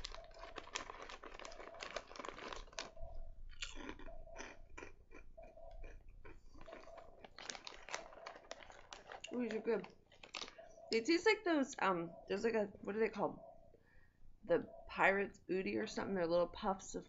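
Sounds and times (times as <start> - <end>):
crunching and chewing chips: 0.0 - 10.7.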